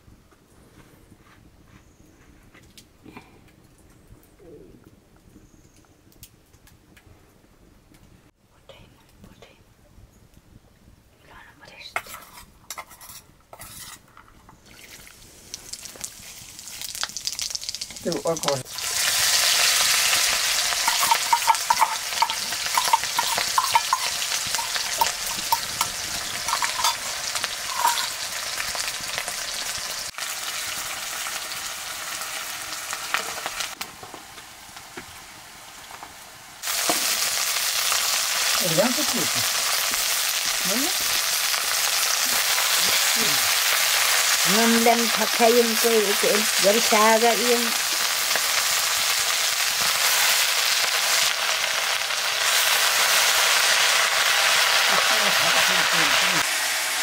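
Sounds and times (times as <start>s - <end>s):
onions sizzling in hot oil: 14.6s - 57.0s.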